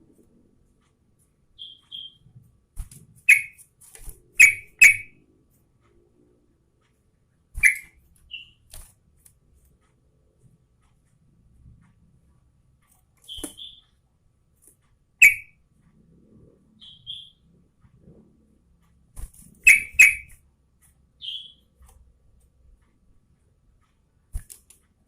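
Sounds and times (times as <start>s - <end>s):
soft paired chirps: 0.1s - 6.0s, 6.8s - 8.7s, 9.8s - 14.2s, 14.8s - 18.0s, 18.8s - 25.0s
bird call notes: 1.6s - 2.2s, 3.3s - 3.6s, 4.4s - 5.2s, 7.6s - 8.6s, 13.2s - 14.0s, 15.2s - 15.5s, 16.8s - 17.4s, 19.6s - 20.4s, 21.2s - 21.7s.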